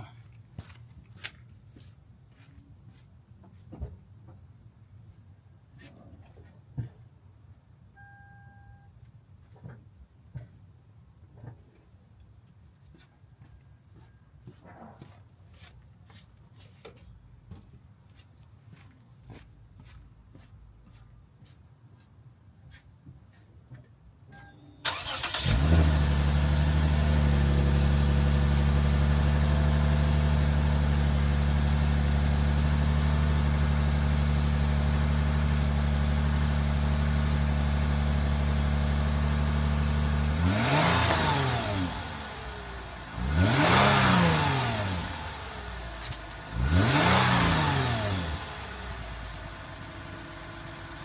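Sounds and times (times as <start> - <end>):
car engine starting and idling: 24.4 - 51.0
car engine revving: 24.9 - 51.0.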